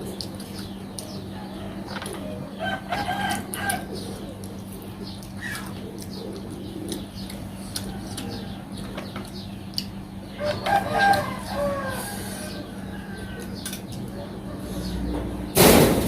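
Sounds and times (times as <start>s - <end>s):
steady low hum: 0.0s - 16.0s
rooster crowing: 1.3s - 4.0s, 10.3s - 13.6s
eating clicks and smacks: 3.2s - 10.0s.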